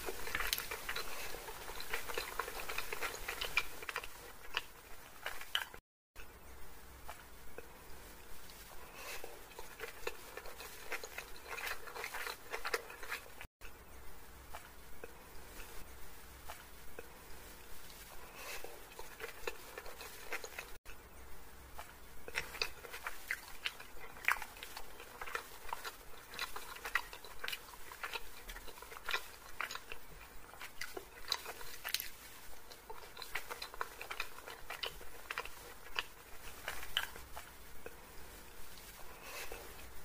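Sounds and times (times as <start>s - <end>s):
chewing and mouth sounds: 0.0s - 5.8s, 8.5s - 13.5s, 17.9s - 20.8s, 21.8s - 38.0s.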